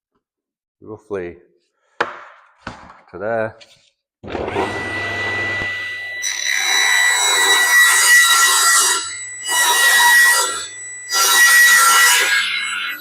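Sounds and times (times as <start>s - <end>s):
power saw ripping wood: 4.2s - 8.8s.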